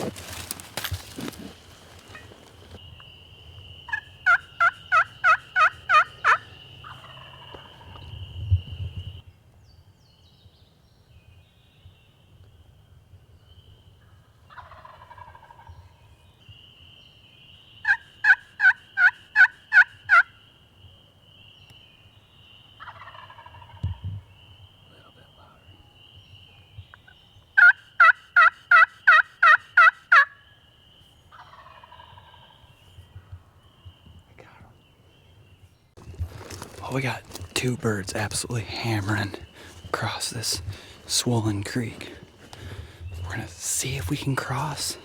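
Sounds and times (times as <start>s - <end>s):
wild turkey yelps: 3.9s - 8.1s, 14.5s - 15.8s, 17.8s - 20.4s, 22.8s - 24.0s, 27.0s - 30.5s, 31.3s - 32.7s.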